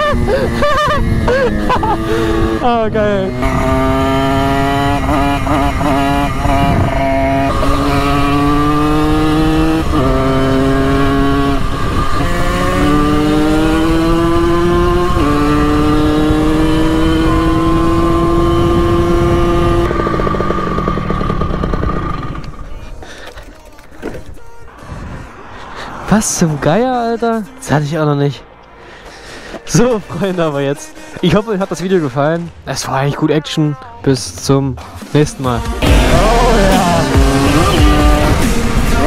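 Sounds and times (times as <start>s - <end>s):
two-stroke moped accelerating: 0.0s - 24.3s, 35.6s - 39.0s.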